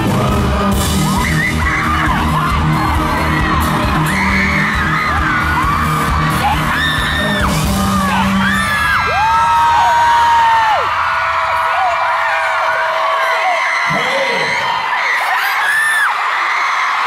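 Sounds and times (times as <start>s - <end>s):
live pop band music: 0.0s - 12.0s
fans screaming and whooping: 0.0s - 17.0s.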